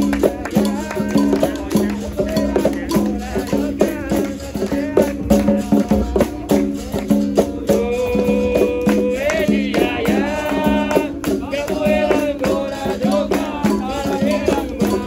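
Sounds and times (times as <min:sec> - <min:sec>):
berimbau playing: 0:00.0 - 0:15.0
group of voices singing: 0:00.0 - 0:15.0
hand percussion strikes: 0:00.0 - 0:15.0
person singing: 0:00.0 - 0:15.0.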